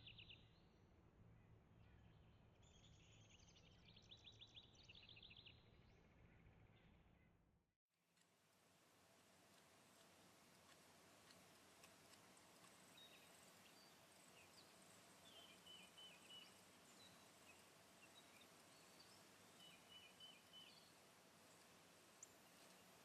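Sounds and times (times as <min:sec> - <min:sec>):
soft steady background hiss: 0:08.0 - 0:23.0
songbird chirps: 0:09.2 - 0:23.0.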